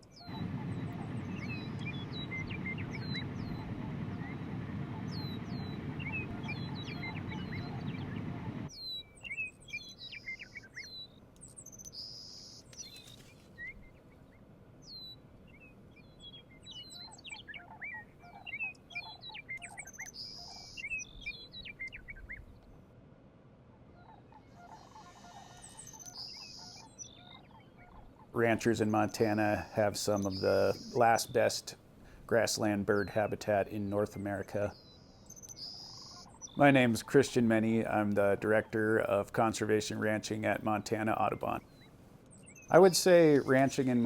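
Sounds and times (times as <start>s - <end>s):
songbirds chirping and trilling: 0.0s - 22.9s, 23.7s - 44.0s
low rumble: 0.3s - 8.7s.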